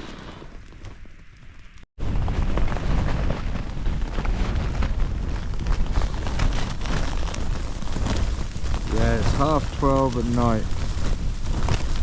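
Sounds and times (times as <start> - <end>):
storm wind gusts: 0.0 - 12.0
tent fabric flapping: 1.8 - 12.0
sleet ticking on tent: 4.7 - 12.0.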